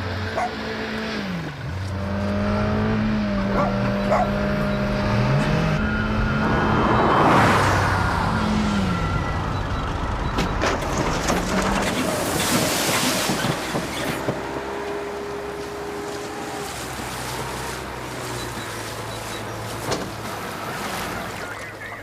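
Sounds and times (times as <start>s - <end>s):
car engine revving: 0.0s - 10.3s.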